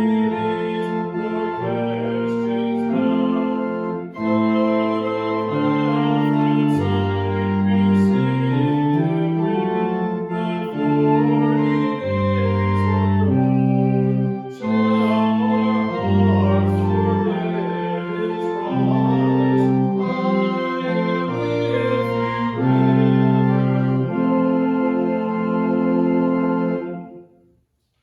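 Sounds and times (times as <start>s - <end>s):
church organ playing hymn: 0.0s - 27.4s.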